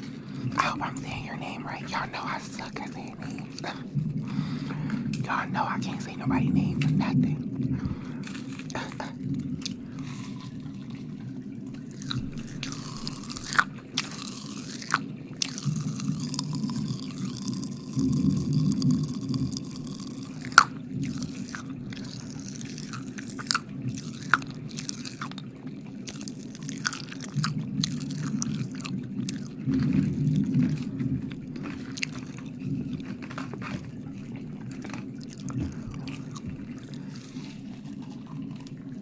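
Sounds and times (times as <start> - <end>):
wet mouth clicks and smacks: 0.0 - 3.9, 6.8 - 33.9
breathy hiss: 0.0 - 11.1
steady low hum: 0.0 - 39.0.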